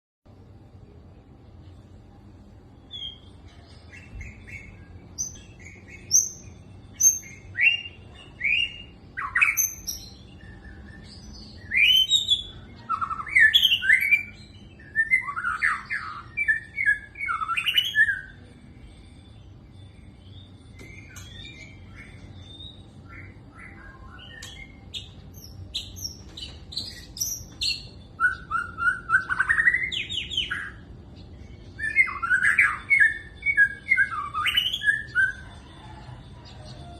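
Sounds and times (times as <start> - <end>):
bird singing whistled phrases: 4.0 - 18.4, 25.8 - 30.9, 31.6 - 35.4.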